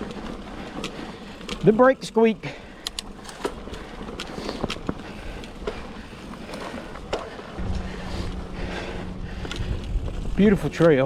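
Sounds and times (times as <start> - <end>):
bike clicks and rattles: 0.0 - 7.6
bike tyre rumble on dirt: 0.0 - 11.0
low hum: 7.5 - 11.0
wind on microphone: 7.6 - 10.8.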